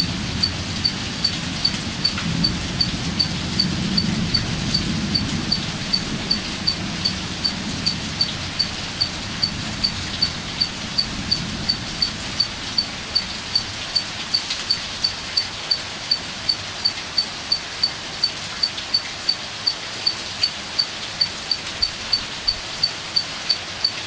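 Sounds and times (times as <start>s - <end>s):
thunder rumble: 0.0s - 15.4s
rain: 0.0s - 24.0s.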